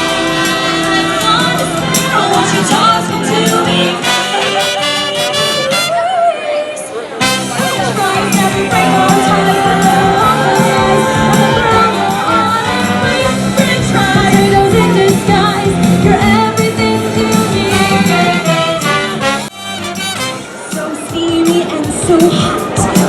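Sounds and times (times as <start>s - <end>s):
band accompaniment: 0.0s - 6.1s, 7.2s - 23.0s
women singing upbeat song: 0.0s - 19.2s, 20.7s - 23.0s
drum beat: 7.6s - 23.0s.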